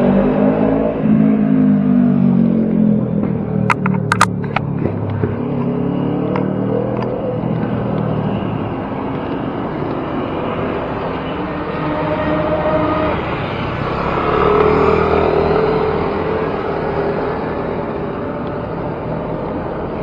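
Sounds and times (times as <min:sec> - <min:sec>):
street traffic: 0:00.8 - 0:20.0
sharp clicks: 0:03.7 - 0:04.3.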